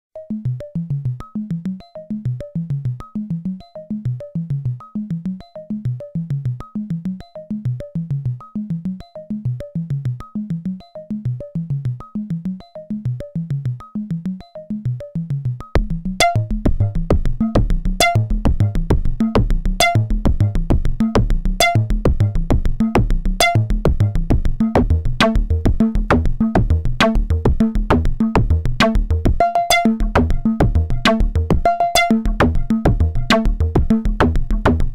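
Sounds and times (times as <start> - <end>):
deep synth bass: 15.8 - 34.9
short clicky synthesizer notes: 15.8 - 34.9.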